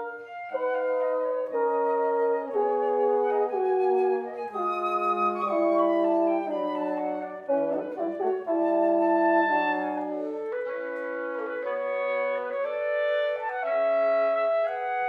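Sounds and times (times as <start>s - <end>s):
wind quintet playing chords: 0.0s - 15.0s.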